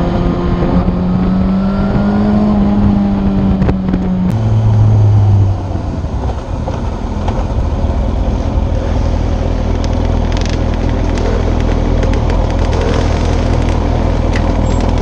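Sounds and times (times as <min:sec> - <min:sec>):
motorcycle engine running: 0:00.0 - 0:15.0
road and wind noise: 0:00.0 - 0:15.0.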